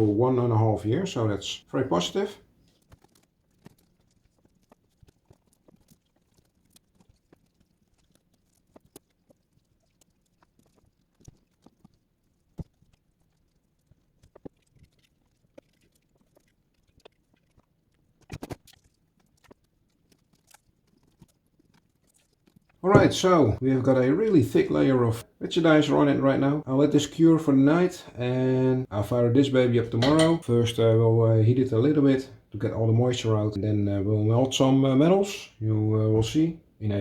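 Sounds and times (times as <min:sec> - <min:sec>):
louder knocks: 0:22.9 - 0:23.3.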